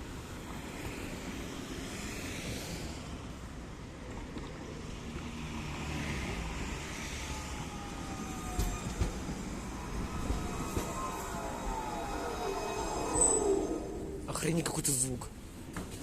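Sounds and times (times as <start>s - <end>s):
tram wheels rumbling on rail: 0.0s - 16.0s
faint falling whine: 7.4s - 14.8s.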